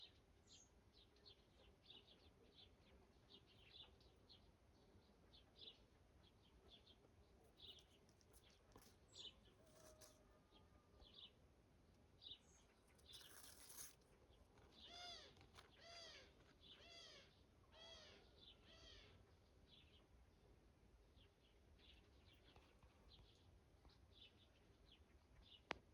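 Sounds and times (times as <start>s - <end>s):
faint high bird chirps: 12.2s - 14.0s.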